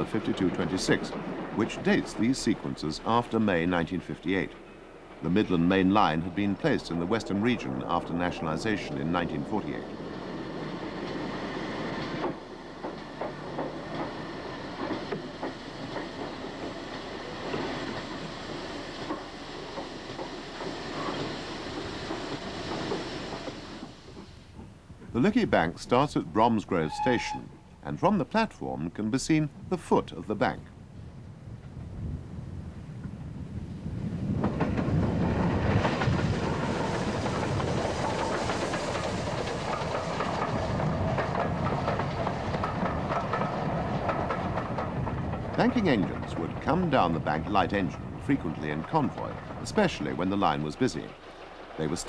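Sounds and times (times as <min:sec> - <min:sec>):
steam train running: 0:00.0 - 0:30.6, 0:33.8 - 0:52.0
wheel clatter and knocks: 0:12.0 - 0:24.8, 0:34.2 - 0:52.0.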